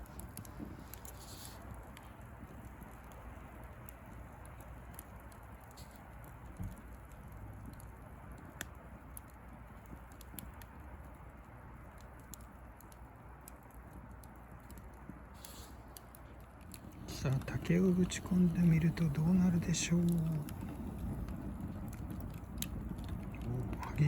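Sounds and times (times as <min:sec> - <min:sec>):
bonfire crackling and popping: 0:00.0 - 0:24.0
fire hissing: 0:00.0 - 0:24.0.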